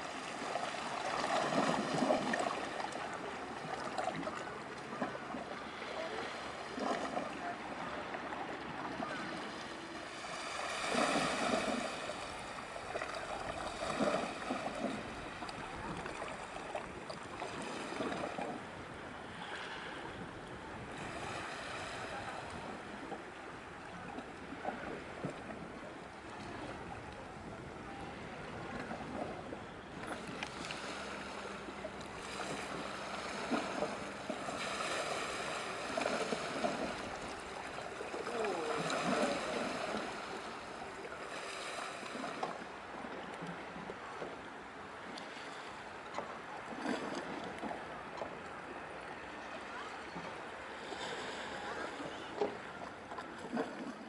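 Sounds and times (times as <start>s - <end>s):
water washing and splashing: 0.0s - 5.6s, 6.6s - 18.6s, 30.0s - 42.6s
wind on the microphone: 0.0s - 34.6s.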